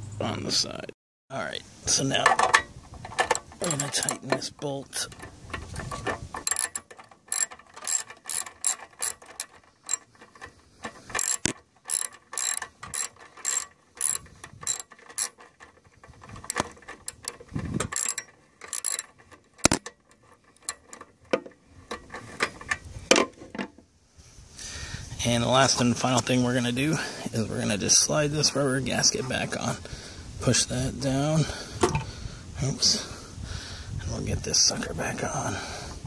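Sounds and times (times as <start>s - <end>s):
ratchet wrench clicking: 5.1s - 21.1s.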